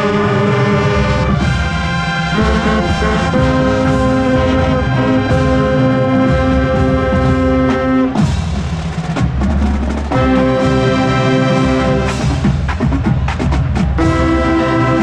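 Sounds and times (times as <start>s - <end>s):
brass and saxophones holding a chord: 0.0s - 8.2s, 10.1s - 12.2s, 14.0s - 15.0s
marching drums: 0.0s - 15.0s.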